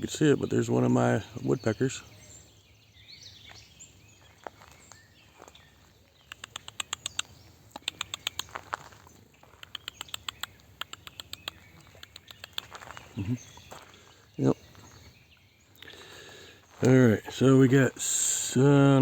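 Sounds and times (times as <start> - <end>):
woodpecker pecking: 6.2 - 14.0.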